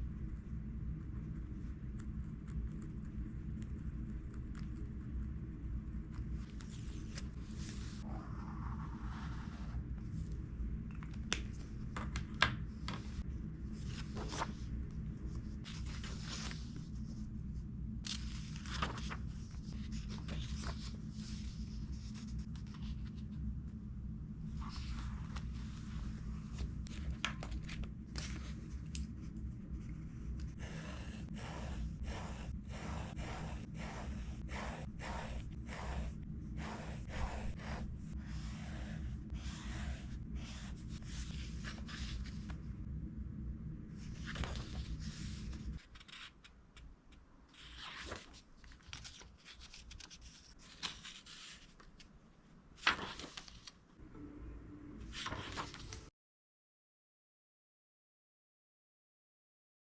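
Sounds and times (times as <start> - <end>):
low hum: 0.0 - 12.0, 12.7 - 46.1, 54.0 - 56.0
pen scratching on paper: 30.5 - 41.2.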